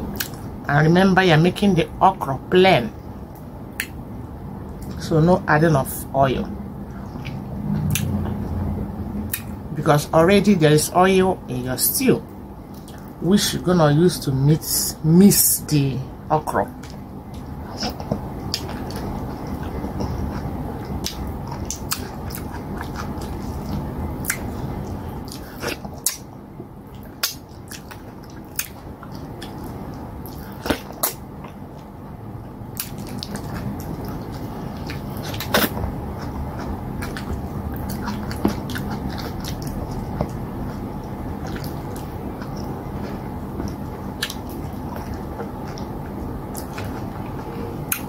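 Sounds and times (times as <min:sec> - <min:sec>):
wet chewing and smacking: 0:00.0 - 0:00.5, 0:06.8 - 0:09.6, 0:12.2 - 0:13.2, 0:16.6 - 0:48.0
low background noise: 0:00.0 - 0:48.0
lip-smacks and clicks: 0:03.3 - 0:04.0, 0:07.2 - 0:08.4, 0:09.3 - 0:09.6, 0:20.8 - 0:26.3, 0:27.0 - 0:31.9.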